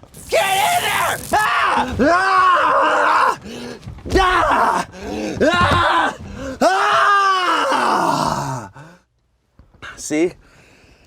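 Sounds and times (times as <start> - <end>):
man groaning and yelling: 0.2 - 3.4, 4.1 - 8.8.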